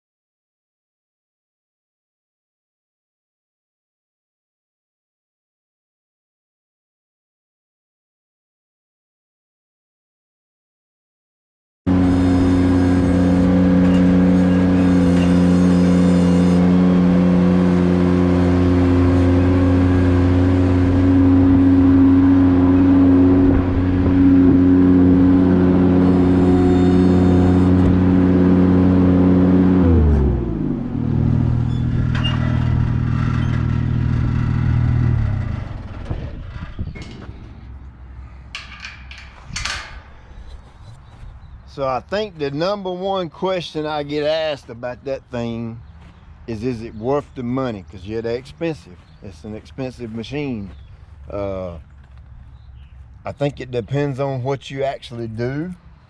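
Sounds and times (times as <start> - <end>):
tractor engine running: 11.9 - 42.5, 46.5 - 55.8.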